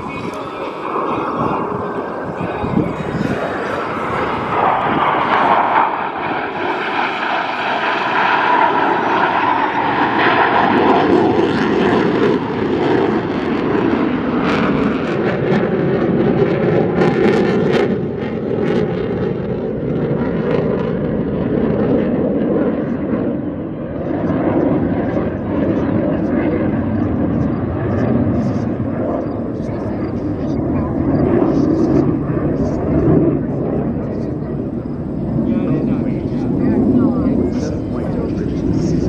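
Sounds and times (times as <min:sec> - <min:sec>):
jet crackle: 0:00.0 - 0:15.0, 0:31.3 - 0:39.0
jet engine whine: 0:00.0 - 0:39.0
jet roar overhead: 0:00.0 - 0:39.0.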